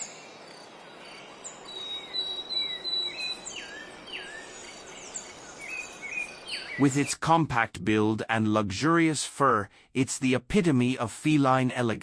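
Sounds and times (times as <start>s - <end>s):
birds whistling calls: 1.4s - 7.2s.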